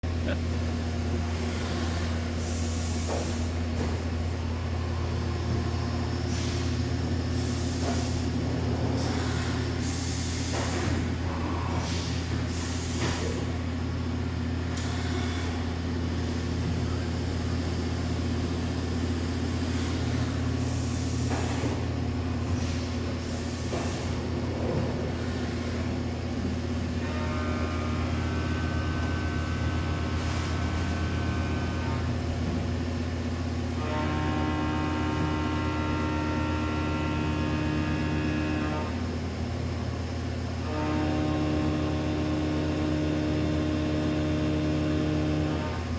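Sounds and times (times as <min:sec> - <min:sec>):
machine low hum: 0:00.0 - 0:45.9.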